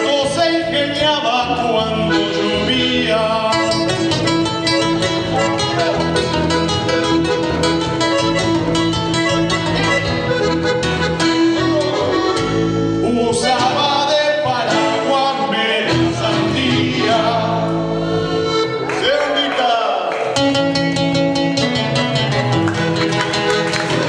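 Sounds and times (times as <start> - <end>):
bass notes: 0.0 - 19.0, 20.4 - 24.0
guitar strumming: 0.0 - 19.0, 20.2 - 24.0
sliding pitch melody: 1.8 - 15.3.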